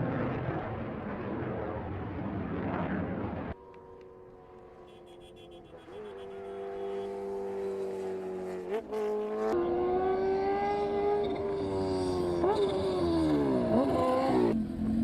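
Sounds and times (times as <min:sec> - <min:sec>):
racing engine at high revs: 0:05.6 - 0:14.8.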